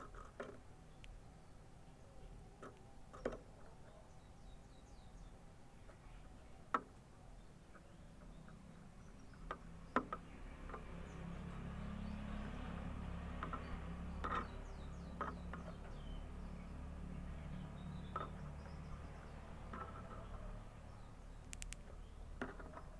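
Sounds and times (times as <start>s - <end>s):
canary chirping: 7.8s - 22.5s
sharp clicks and taps: 21.4s - 22.6s.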